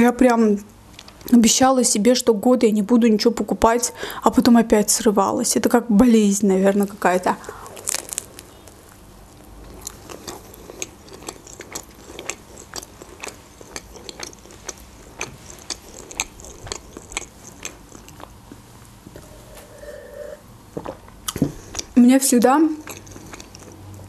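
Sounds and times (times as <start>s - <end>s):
wet mouth chewing sounds: 7.4s - 19.8s, 20.8s - 22.0s, 22.7s - 24.0s.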